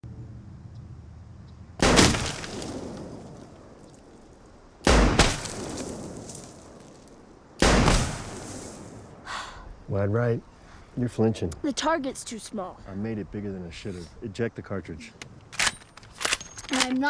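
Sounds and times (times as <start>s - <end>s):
rifle shots with echo: 1.8s - 2.9s, 4.8s - 5.8s, 7.6s - 8.6s.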